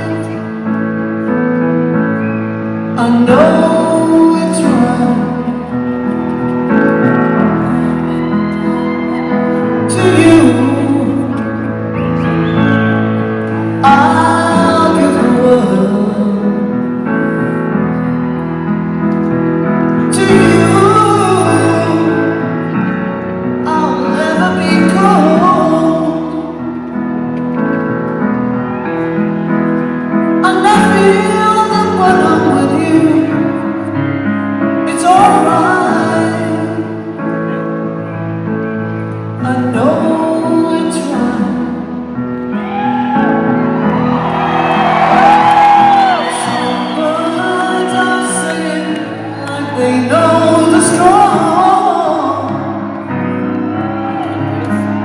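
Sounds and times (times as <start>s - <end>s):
woman singing: 0.0s - 0.7s, 2.9s - 5.7s, 9.6s - 11.8s, 13.7s - 17.0s, 20.0s - 22.6s, 23.6s - 26.6s, 30.4s - 33.9s, 34.8s - 37.1s, 39.4s - 42.1s, 46.1s - 53.0s.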